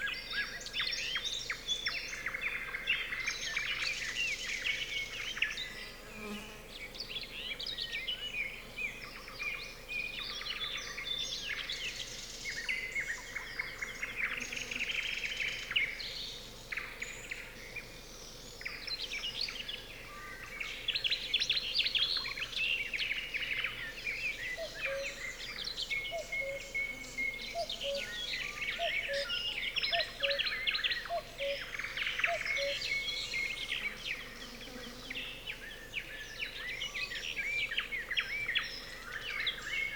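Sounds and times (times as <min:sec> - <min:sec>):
nightingales singing: 0:24.4 - 0:37.4.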